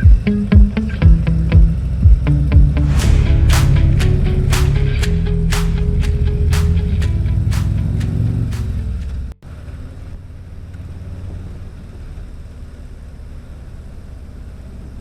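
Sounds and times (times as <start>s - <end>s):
intro music: 0.0s - 9.2s
road noise: 1.1s - 12.5s
motorcycle engine running: 6.8s - 10.4s.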